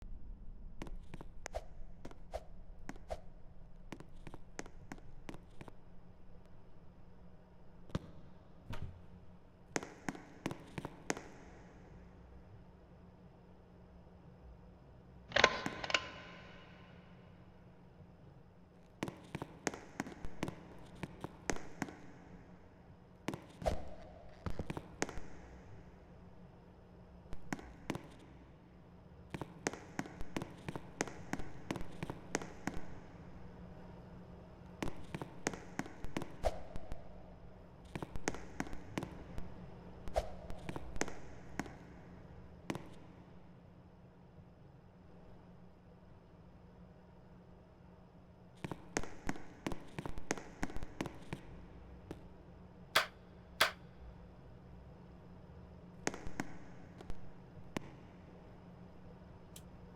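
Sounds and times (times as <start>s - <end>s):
sharp clicks and knocks: 15.3s - 16.7s, 53.0s - 53.8s.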